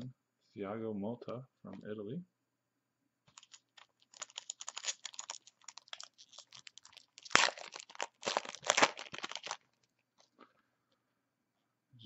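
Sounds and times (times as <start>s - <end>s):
plastic wrapper crinkling and tearing: 3.3s - 10.3s.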